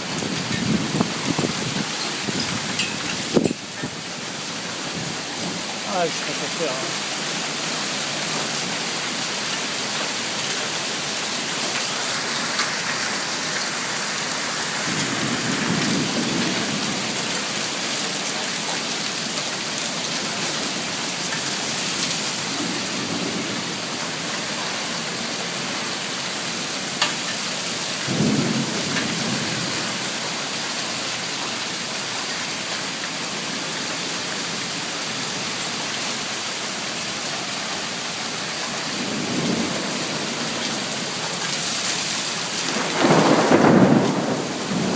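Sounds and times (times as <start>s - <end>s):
heavy rain: 0.0s - 44.9s
thunder rumbling: 28.1s - 30.0s, 42.7s - 44.9s.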